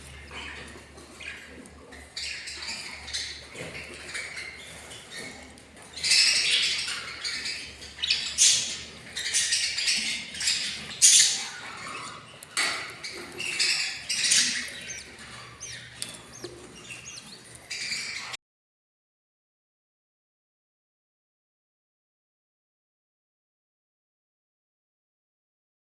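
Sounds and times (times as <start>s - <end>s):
budgerigars squawking: 0.0s - 18.4s
high bird chirps: 0.0s - 18.4s.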